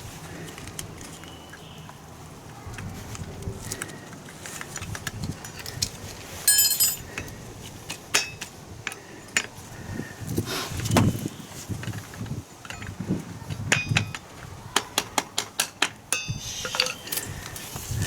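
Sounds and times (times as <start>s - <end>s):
metal tools clinking and knocking: 4.5s - 7.3s, 12.6s - 13.0s, 13.7s - 14.2s, 16.1s - 17.3s.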